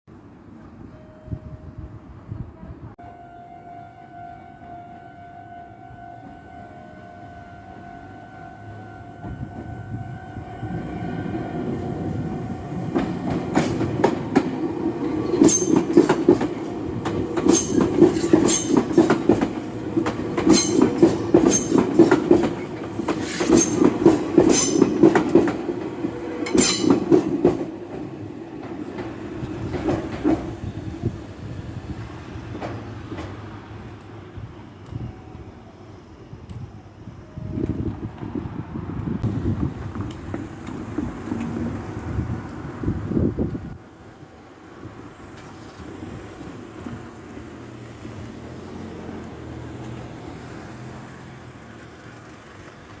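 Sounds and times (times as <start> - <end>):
train wheels clattering over rail joints: 12.9 - 30.6.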